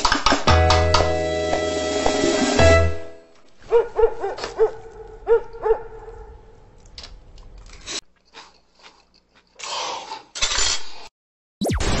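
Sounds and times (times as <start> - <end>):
person chewing rice: 6.8 - 10.4.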